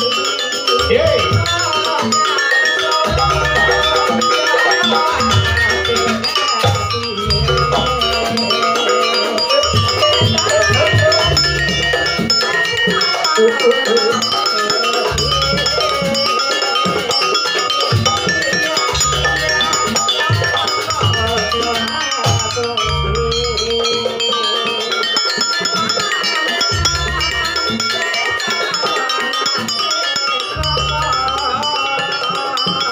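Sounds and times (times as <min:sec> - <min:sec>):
gamelan mallet melody: 0:00.0 - 0:32.9
bass drum beats: 0:05.1 - 0:08.4.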